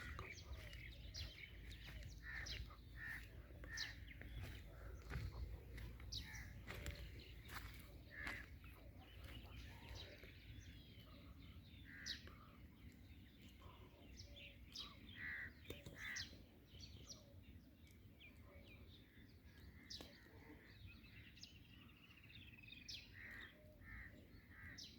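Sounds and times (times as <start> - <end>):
crows cawing: 0.0 - 9.2, 15.1 - 16.3
birds chirping: 0.0 - 24.9.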